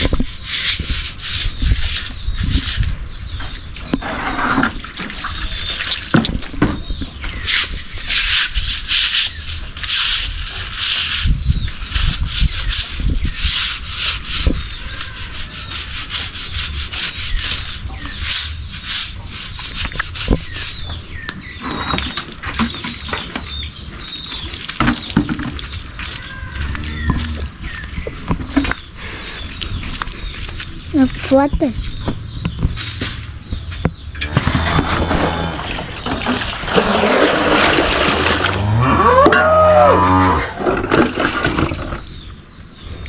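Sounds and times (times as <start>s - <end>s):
rough scraping strokes: 0.0s - 3.0s, 7.3s - 21.0s, 34.2s - 41.4s.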